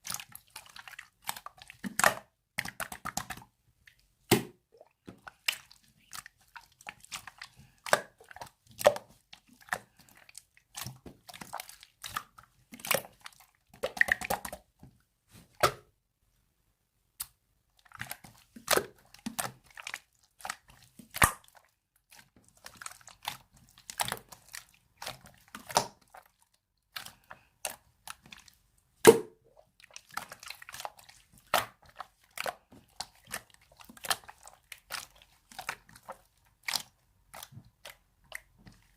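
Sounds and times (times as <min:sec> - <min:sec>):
slime squished by hand: 0:17.2 - 0:38.9.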